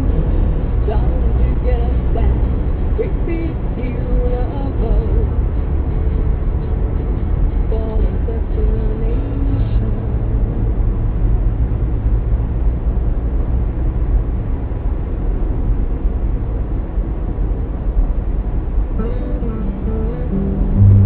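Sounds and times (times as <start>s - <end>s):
vehicle rumble while driving: 0.0s - 21.0s
faint music: 19.0s - 21.0s.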